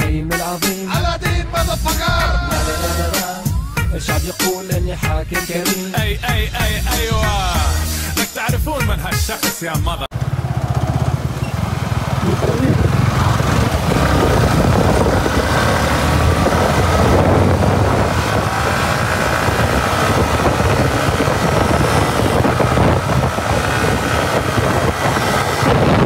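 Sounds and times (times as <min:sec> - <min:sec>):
motorcycle engine accelerating: 0:10.1 - 0:26.0
wind noise on microphone: 0:11.8 - 0:26.0.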